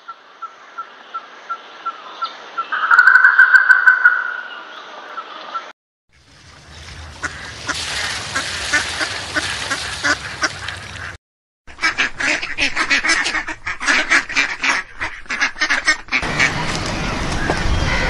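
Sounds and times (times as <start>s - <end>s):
ducks quacking: 5.2s - 16.7s.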